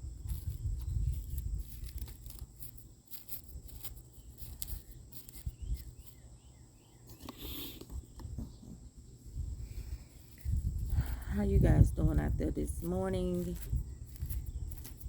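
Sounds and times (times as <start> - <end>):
wind rumbling on microphone: 0.0 - 2.6, 9.3 - 15.0.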